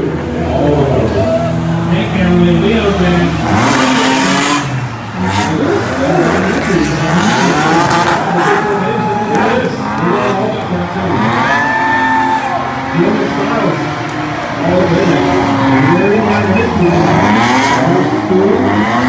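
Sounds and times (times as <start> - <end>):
car engines revving hard: 0.0 - 19.0.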